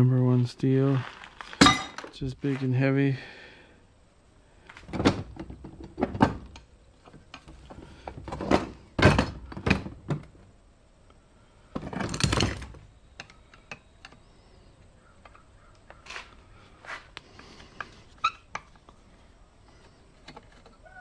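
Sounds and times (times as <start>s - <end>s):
heavy iron parts thunking: 1.5s - 2.2s, 8.1s - 10.3s.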